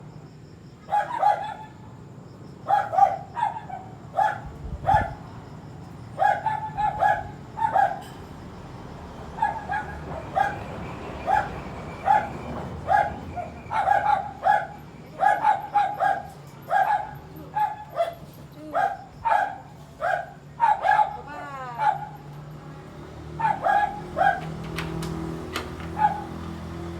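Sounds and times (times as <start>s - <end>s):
dog barking: 0.8s - 1.9s, 2.6s - 5.2s, 6.1s - 8.2s, 9.3s - 22.3s, 23.3s - 24.6s, 25.8s - 26.5s.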